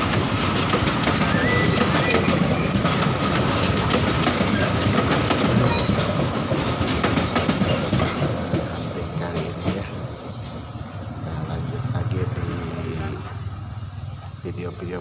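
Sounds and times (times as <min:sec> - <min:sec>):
train wheels clattering on rails: 0:00.0 - 0:10.7.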